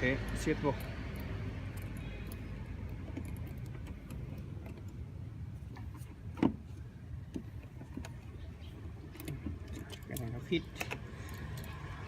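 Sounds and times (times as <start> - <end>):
small metallic clicks and taps: 0.1 - 5.0, 9.1 - 12.0.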